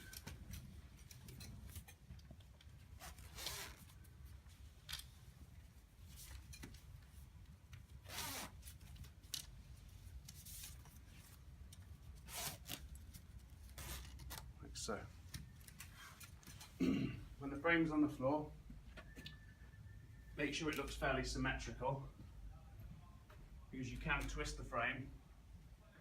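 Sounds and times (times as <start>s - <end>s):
zipper rasping: 3.0s - 3.9s, 8.0s - 8.6s, 12.2s - 12.9s.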